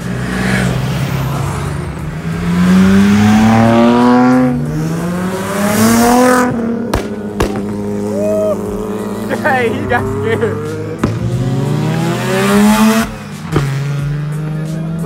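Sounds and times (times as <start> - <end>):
car engine accelerating: 0.0 - 15.0
sharp cracks: 6.9 - 7.8.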